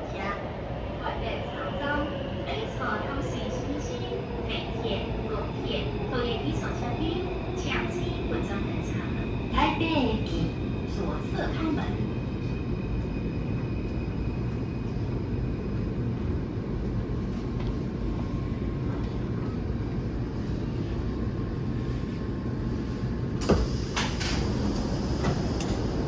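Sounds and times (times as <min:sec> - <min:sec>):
metro train rumbling: 0:00.0 - 0:26.0
sliding doors clunking open: 0:23.4 - 0:26.0.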